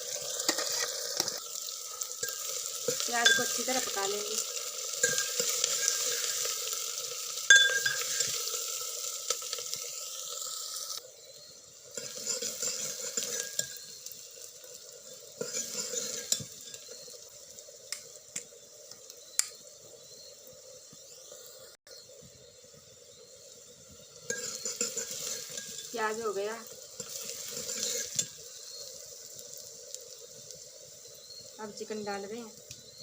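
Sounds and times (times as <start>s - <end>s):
onions sizzling in hot oil: 0.0s - 33.0s
spatula scraping a pan: 0.1s - 1.5s, 4.8s - 7.0s, 11.9s - 14.1s, 15.3s - 17.1s, 24.2s - 25.9s, 26.7s - 29.0s.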